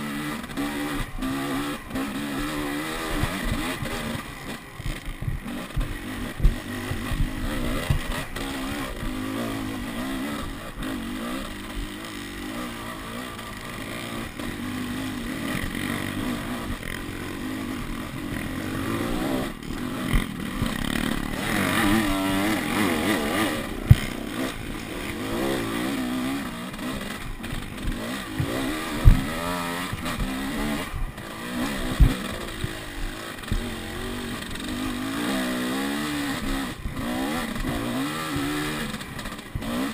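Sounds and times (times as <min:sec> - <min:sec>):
dirt bike engine revving: 0:00.0 - 0:39.9
sharp knocks and clatter: 0:19.0 - 0:33.7.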